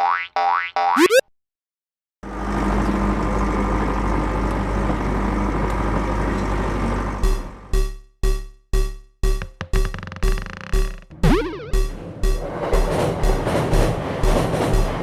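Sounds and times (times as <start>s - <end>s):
cartoon train running sound: 2.7s - 15.0s
pulsing music beat: 7.2s - 15.0s
rising electronic sweep tones: 11.2s - 12.4s.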